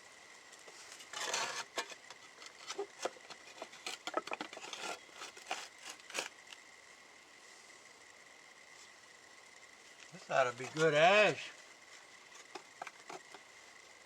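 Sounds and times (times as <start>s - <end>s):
scraping ash with clinks: 0.6s - 6.6s, 10.1s - 13.4s.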